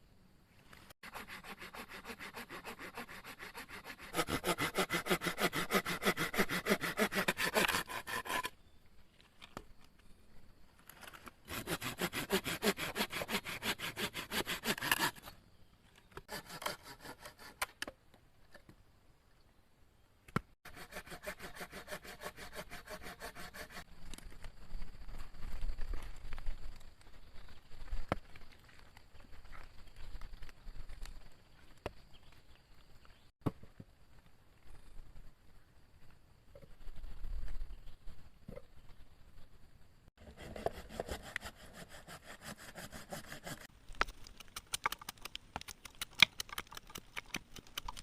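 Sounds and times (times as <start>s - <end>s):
hand saw cutting wood: 1.0s - 8.6s, 11.5s - 15.3s, 16.3s - 17.8s, 20.6s - 23.8s, 40.2s - 43.7s.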